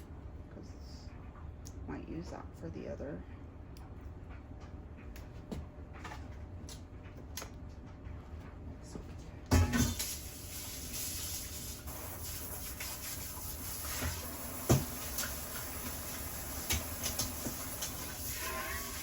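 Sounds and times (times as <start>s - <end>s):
tap water running: 9.5s - 19.0s.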